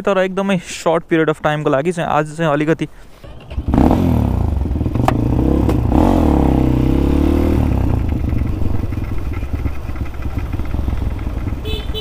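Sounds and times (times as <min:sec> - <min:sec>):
dirt bike engine revving: 0:03.3 - 0:12.0.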